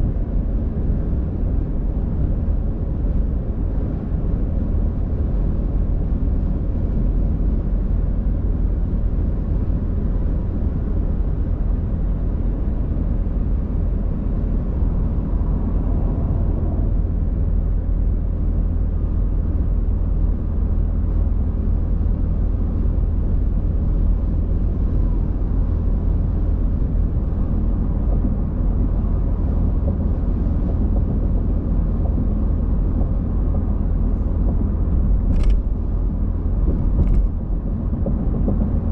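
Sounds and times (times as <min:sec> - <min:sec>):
car driving road noise: 0:00.0 - 0:38.9.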